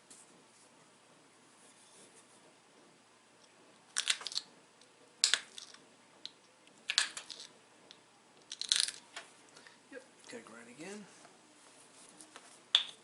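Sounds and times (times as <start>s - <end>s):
stone flakes snapping: 5.2s - 5.8s, 8.4s - 9.0s.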